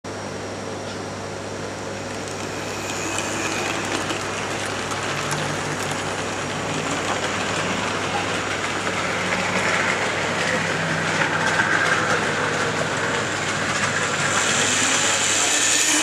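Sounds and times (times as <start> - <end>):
model train motor whirring: 2.0 - 10.0, 13.6 - 16.0.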